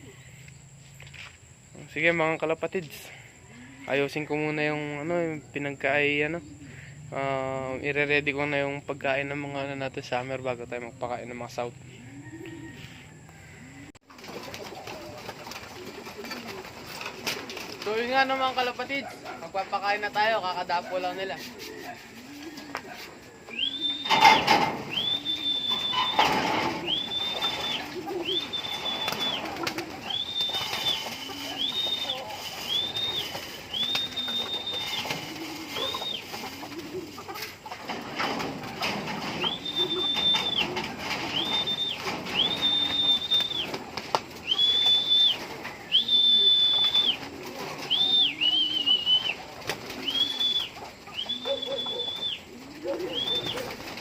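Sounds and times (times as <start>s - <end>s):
pigeons cooing: 3.0s - 8.1s, 11.4s - 54.0s
high whistle-like notes: 23.5s - 36.2s, 39.4s - 43.8s, 44.4s - 47.2s.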